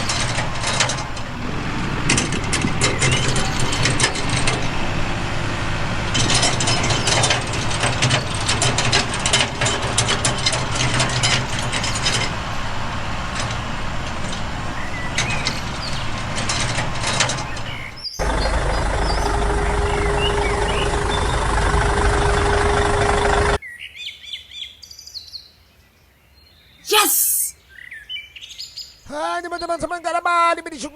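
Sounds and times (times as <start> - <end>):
birds chirping: 1.6 - 9.2, 9.8 - 23.7.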